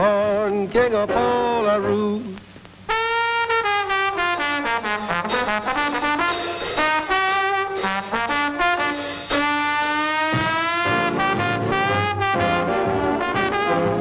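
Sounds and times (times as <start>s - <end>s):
jazzy brass music: 2.9s - 14.0s
trumpet playing short notes: 2.9s - 14.0s.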